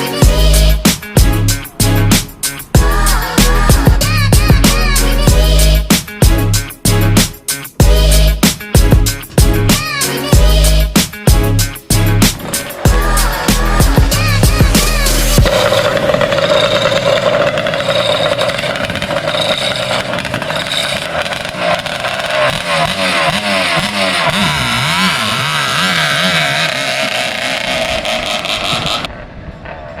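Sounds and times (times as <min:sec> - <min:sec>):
jet-ski engine revving: 0:12.3 - 0:29.1.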